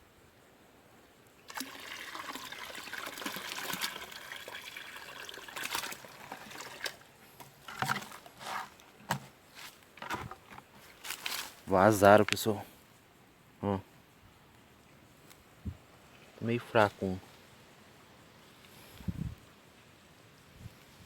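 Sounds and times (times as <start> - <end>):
water pouring and splashing: 1.5 - 8.6.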